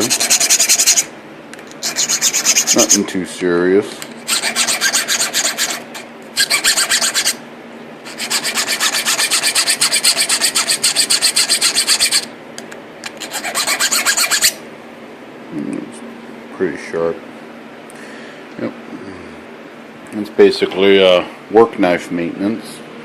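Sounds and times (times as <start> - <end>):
file rasping on steel knife edge: 0.0 - 1.1, 1.8 - 3.0, 4.3 - 7.4, 8.1 - 12.3, 13.2 - 14.6.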